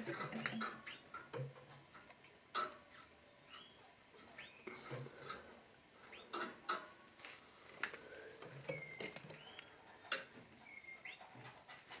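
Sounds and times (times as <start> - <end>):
canaries whistling call notes: 8.7 - 9.8, 10.6 - 11.3.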